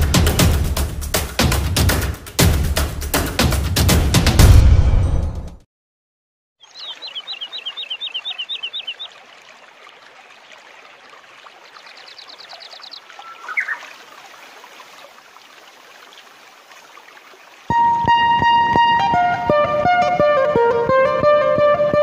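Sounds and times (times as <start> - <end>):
birds chirping and trilling: 6.6 - 10.1, 11.1 - 15.0.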